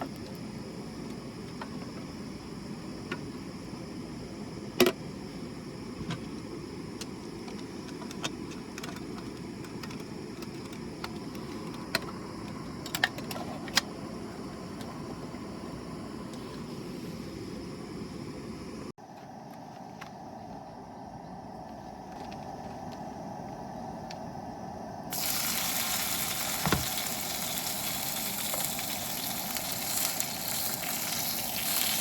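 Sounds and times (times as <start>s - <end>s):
steady high hiss: 23.7s - 32.0s
wood fire crackling: 25.1s - 32.0s.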